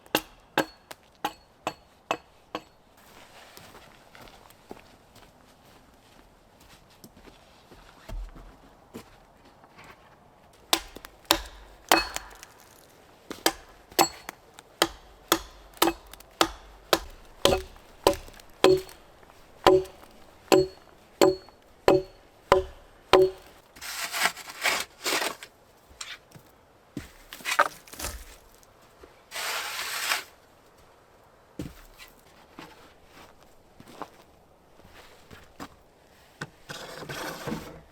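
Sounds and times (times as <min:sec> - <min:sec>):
axe chopping wood: 0:00.0 - 0:02.7, 0:10.7 - 0:24.2
rough scraping: 0:10.7 - 0:26.2, 0:29.3 - 0:30.4, 0:36.7 - 0:37.9.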